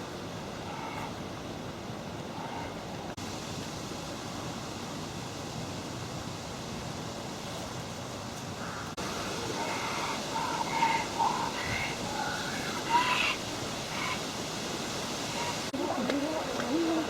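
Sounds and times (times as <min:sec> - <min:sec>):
outdoor background noise: 0:00.0 - 0:17.0
faint voices: 0:15.2 - 0:17.0.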